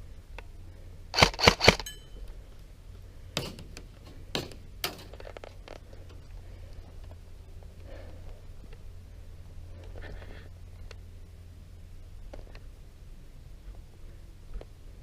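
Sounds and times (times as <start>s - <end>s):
airsoft gun shots: 1.1s - 1.9s
brief ringing: 1.8s - 2.2s.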